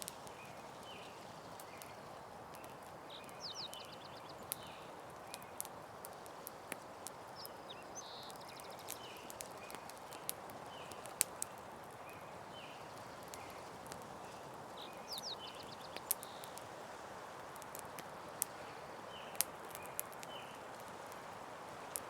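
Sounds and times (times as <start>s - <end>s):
campfire crackling and popping: 0.0s - 22.0s
short chirping calls: 0.3s - 5.6s, 7.3s - 13.7s, 14.8s - 16.6s.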